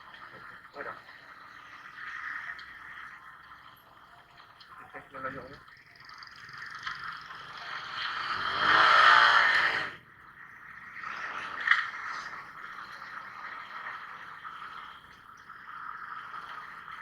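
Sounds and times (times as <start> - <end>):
motorcycle riding noise: 6.2 - 10.2.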